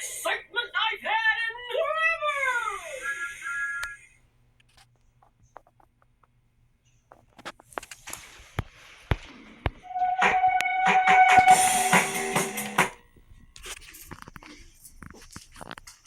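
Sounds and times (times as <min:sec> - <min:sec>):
music with held notes: 0:09.9 - 0:13.0.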